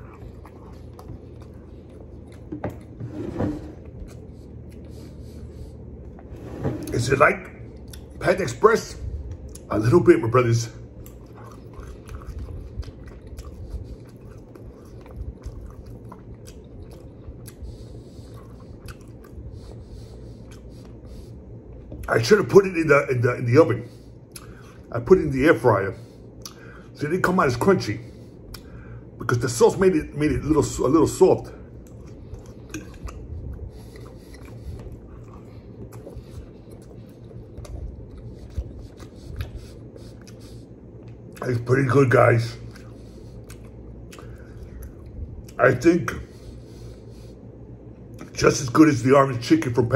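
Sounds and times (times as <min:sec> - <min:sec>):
person chewing wetly: 0:00.0 - 0:03.0, 0:03.8 - 0:06.3, 0:07.7 - 0:08.2, 0:10.8 - 0:22.1, 0:24.1 - 0:24.9, 0:26.1 - 0:27.0, 0:28.0 - 0:28.9, 0:31.6 - 0:41.8, 0:42.5 - 0:45.7
steady low hum: 0:00.0 - 0:49.9.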